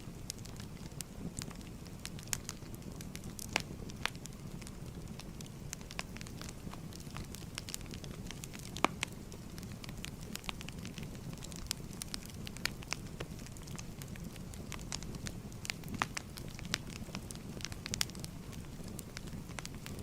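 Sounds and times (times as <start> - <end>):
burning logs crackling and popping: 0.0 - 20.0
fire low rumble: 0.0 - 20.0.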